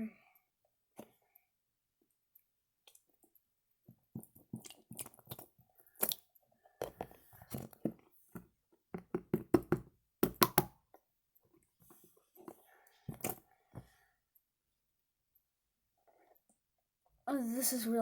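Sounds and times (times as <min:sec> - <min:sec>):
slime squelching: 0:04.0 - 0:07.8.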